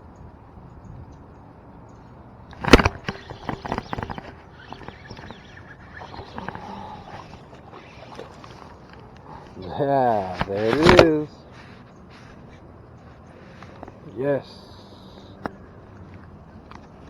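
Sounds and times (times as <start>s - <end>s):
quick clicks and rattles: 2.5s - 9.6s, 10.2s - 12.4s.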